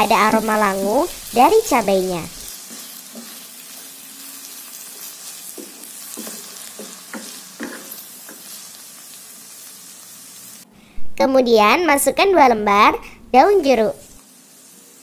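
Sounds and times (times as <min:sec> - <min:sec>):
vegetables sizzling in hot oil: 0:00.0 - 0:10.7, 0:13.4 - 0:15.0
spatula scraping and tapping pan: 0:02.5 - 0:03.5, 0:05.0 - 0:08.7.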